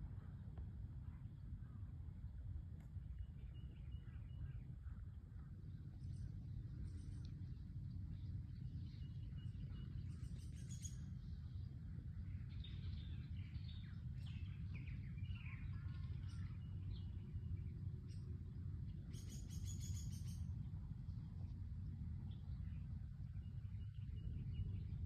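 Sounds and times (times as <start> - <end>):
steady low rumble: 0.0 - 25.0
wild birds chirping: 3.2 - 21.6.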